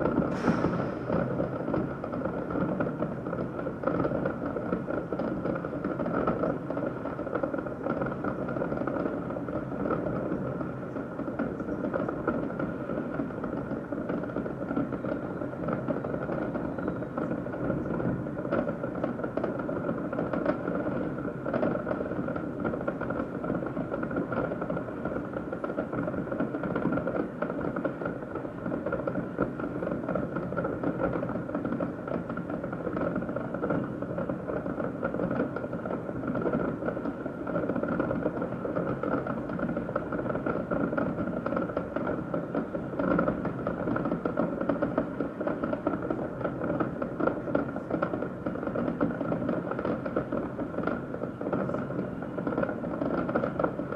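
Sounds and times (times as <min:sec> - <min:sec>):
distant fireworks popping: 0:00.0 - 0:53.9.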